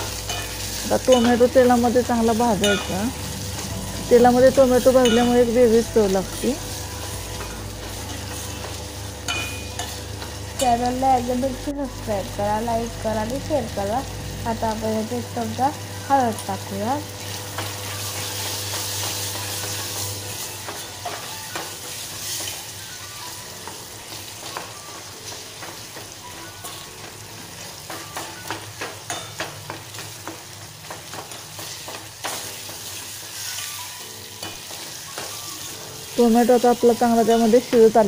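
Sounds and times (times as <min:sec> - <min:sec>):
ladle stirring and scraping pan: 0:00.0 - 0:10.8
onion and tomato sizzling in oil: 0:00.0 - 0:38.0.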